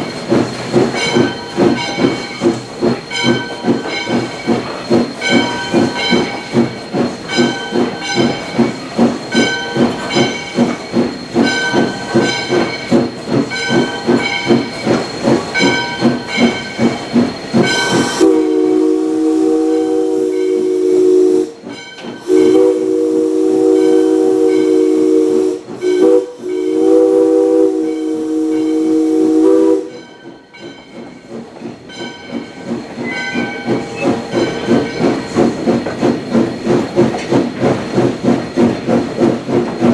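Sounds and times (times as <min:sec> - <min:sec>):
steam locomotive chime whistle: 0:00.0 - 0:31.3
steam locomotive chuffing: 0:00.0 - 0:39.9.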